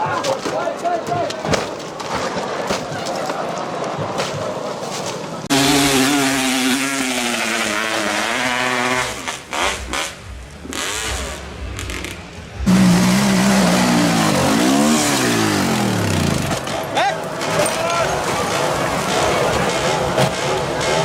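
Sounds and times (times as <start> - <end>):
dirt bike engine revving: 5.4 - 21.0.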